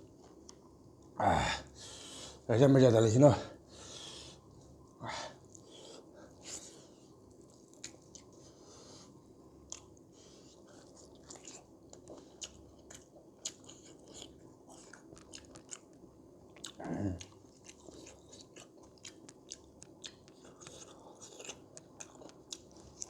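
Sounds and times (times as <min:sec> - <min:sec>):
person chewing food: 0:05.4 - 0:23.0.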